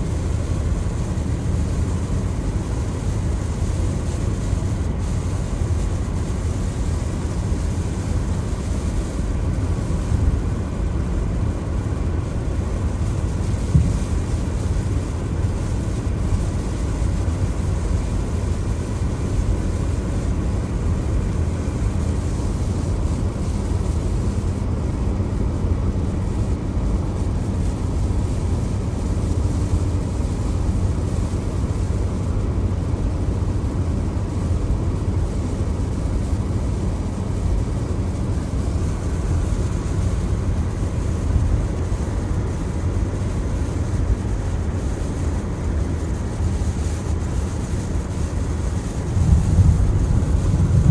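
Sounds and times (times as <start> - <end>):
deep road rumble: 0.0 - 50.9
rain: 0.0 - 50.9
tyres hissing on wet road: 0.0 - 50.9.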